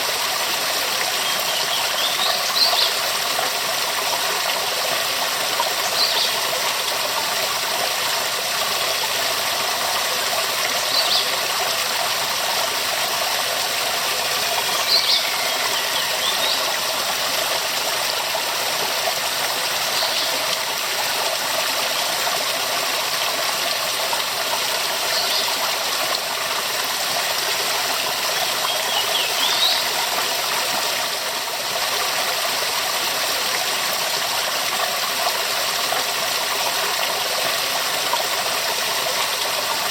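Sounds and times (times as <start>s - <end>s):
waterfall rushing: 9.2s - 22.0s.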